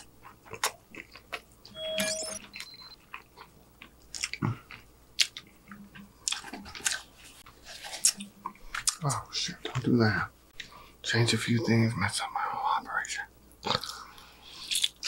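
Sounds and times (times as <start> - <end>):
crunchy food being chewed: 0.0 - 1.5, 2.5 - 9.9.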